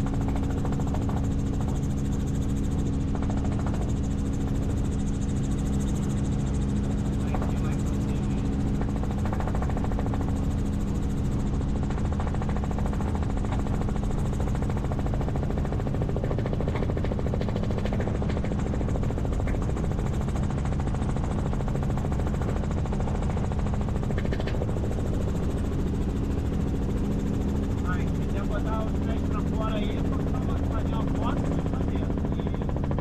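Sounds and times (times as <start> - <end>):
helicopter engine and rotor drone: 0.0 - 33.0
rotor blades beating: 0.0 - 33.0.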